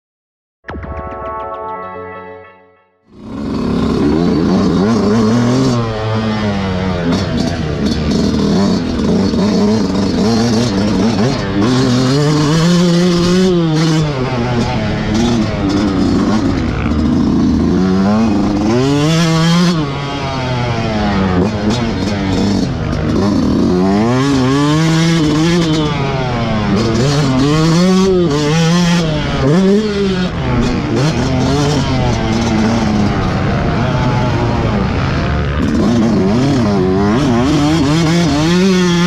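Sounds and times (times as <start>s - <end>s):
motocross engine revving: 3.1s - 39.0s.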